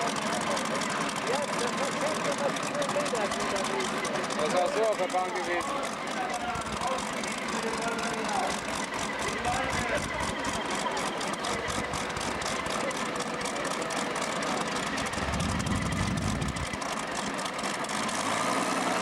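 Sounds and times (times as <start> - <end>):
large engine idling: 0.0 - 19.0
deep rumble: 15.2 - 16.8.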